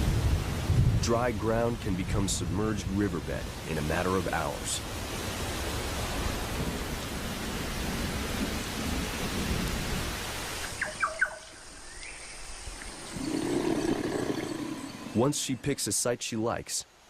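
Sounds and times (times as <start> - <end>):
low rumble of thunder: 0.0 - 2.6
heavy rain pouring: 0.0 - 11.0.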